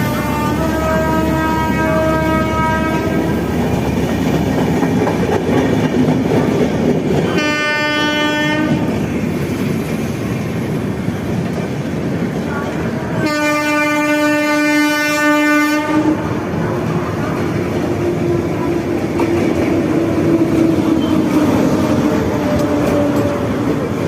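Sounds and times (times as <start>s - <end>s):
train horn blast: 0.0s - 3.4s, 7.3s - 9.0s, 13.2s - 16.4s
train wheels clattering: 2.8s - 13.0s, 16.5s - 24.0s.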